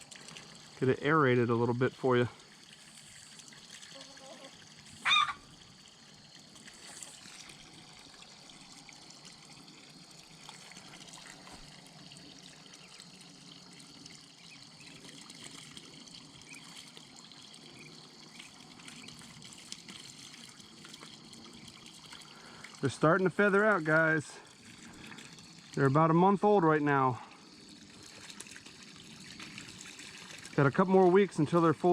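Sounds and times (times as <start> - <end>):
water trickling into pond: 0.0 - 31.9.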